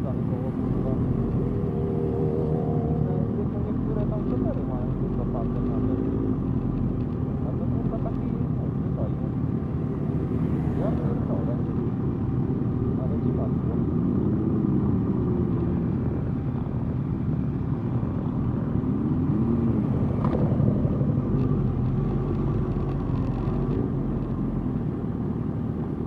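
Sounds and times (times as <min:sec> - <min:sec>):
motorcycle engines revving: 0:00.0 - 0:08.5, 0:09.1 - 0:26.0.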